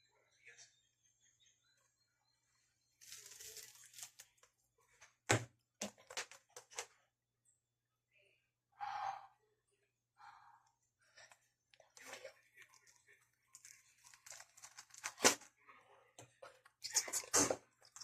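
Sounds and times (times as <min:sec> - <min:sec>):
paper squishy crackling and crinkling: 0:03.0 - 0:04.5, 0:12.0 - 0:15.5.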